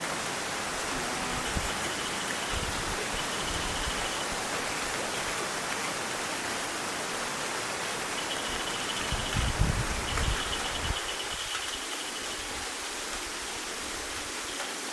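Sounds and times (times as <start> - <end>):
heavy rain falling: 0.0 - 14.9.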